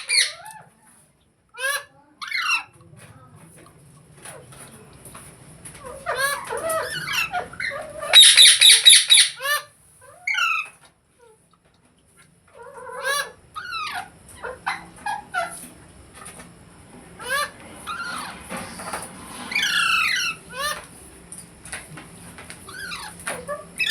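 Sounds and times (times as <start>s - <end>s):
parrot screeching: 0.0s - 0.6s, 1.6s - 2.7s, 5.8s - 10.8s, 12.6s - 15.6s, 17.2s - 20.9s, 22.7s - 23.9s
parrot chirping and squawking: 0.0s - 0.7s, 1.6s - 2.8s, 5.8s - 11.4s, 12.5s - 15.7s, 17.2s - 21.0s, 22.6s - 23.9s.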